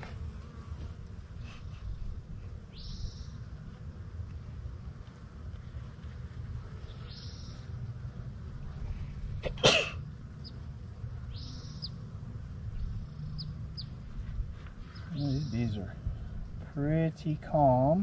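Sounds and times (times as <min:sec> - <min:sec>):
birds whistling and chirping: 0:02.7 - 0:03.4, 0:07.1 - 0:07.6, 0:11.3 - 0:12.0, 0:14.9 - 0:15.8.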